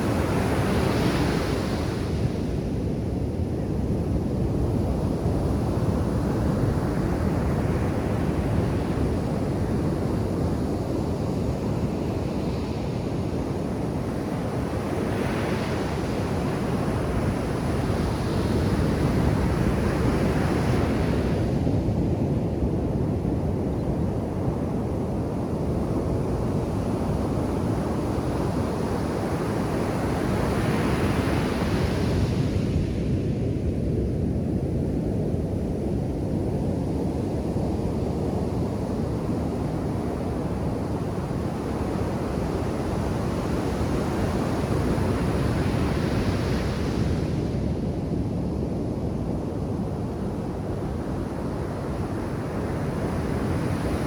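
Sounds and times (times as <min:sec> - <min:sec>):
surf waves breaking on sand: 0:39.4 - 0:54.0.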